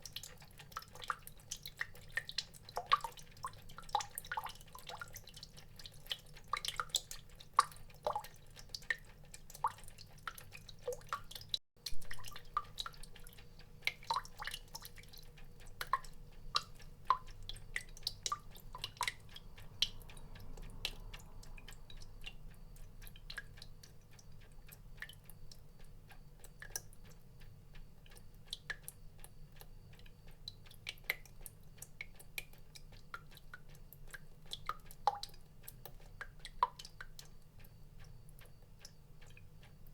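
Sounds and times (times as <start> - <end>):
water drops dripping: 0.0 - 39.9.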